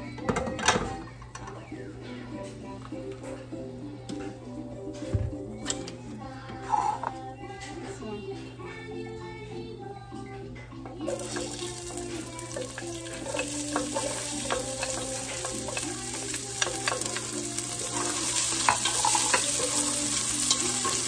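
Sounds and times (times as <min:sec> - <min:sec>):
onion sizzling in hot oil: 0:11.1 - 0:21.0.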